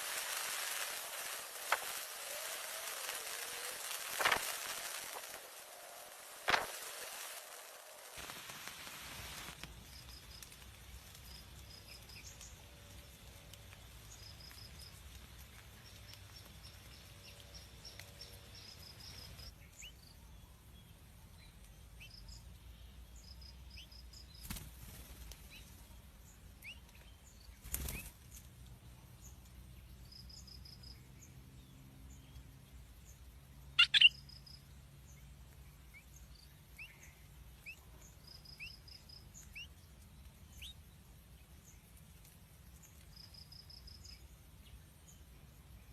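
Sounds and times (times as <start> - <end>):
bird wings flapping: 0.0 - 9.6, 24.4 - 25.5, 27.6 - 28.4
faint high chirps: 33.8 - 34.6.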